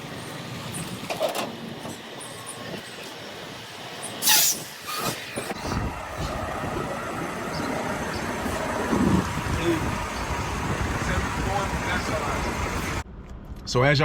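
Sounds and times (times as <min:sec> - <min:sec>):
semi truck engine rumble: 0:00.0 - 0:13.6
air-brake hiss: 0:04.2 - 0:05.6.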